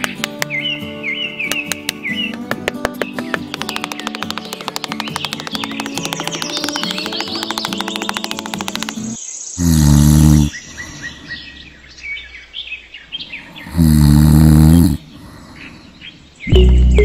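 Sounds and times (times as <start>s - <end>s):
birds chirping: 0.0s - 17.0s
cartoon snoring: 9.0s - 11.3s, 13.4s - 15.6s.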